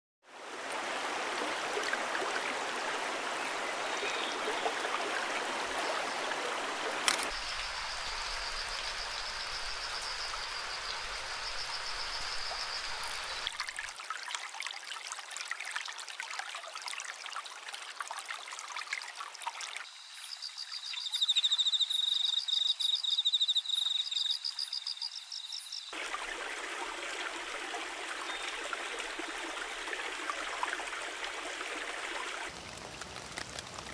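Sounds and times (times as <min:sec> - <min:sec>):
stream water running: 0:00.2 - 0:33.9.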